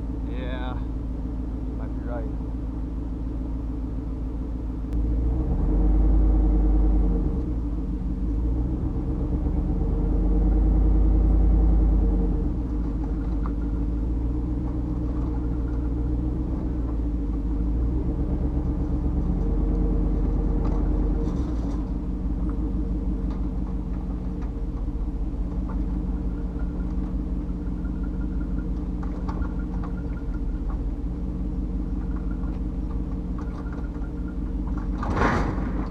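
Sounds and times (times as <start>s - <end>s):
pickup truck engine rumble: 0.0s - 35.9s.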